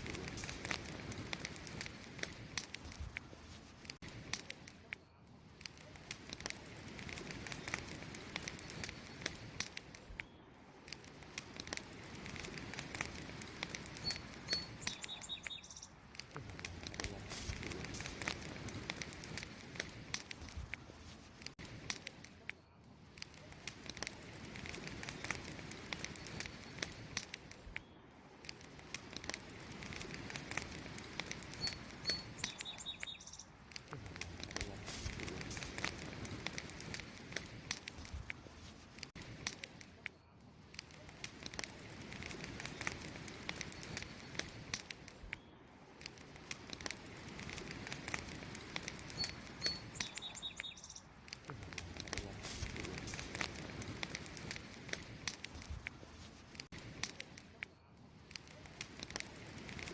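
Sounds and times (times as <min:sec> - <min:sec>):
campfire crackling: 0:00.0 - 0:59.9
bird chirping: 0:14.0 - 0:16.0, 0:31.5 - 0:33.6, 0:49.1 - 0:51.1.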